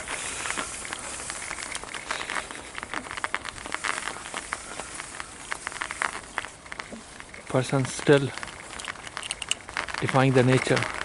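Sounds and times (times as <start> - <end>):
footsteps crunching on snow: 0.0 - 11.0
steady hiss: 0.0 - 11.0.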